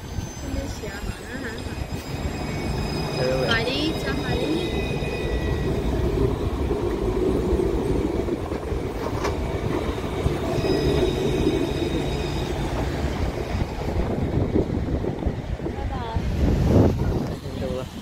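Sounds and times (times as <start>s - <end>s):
high ringing wheel squeal: 0.0s - 6.3s, 10.1s - 13.6s
train rumbling on rails: 0.0s - 18.0s.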